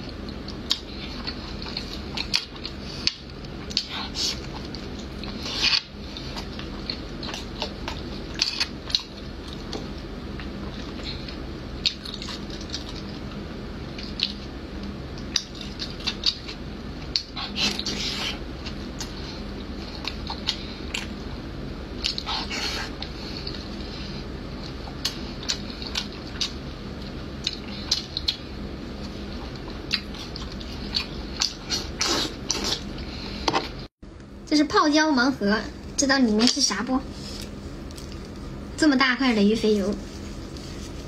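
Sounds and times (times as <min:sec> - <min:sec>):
wet squishy chewing: 0:00.2 - 0:21.2, 0:22.0 - 0:23.7, 0:24.6 - 0:32.9.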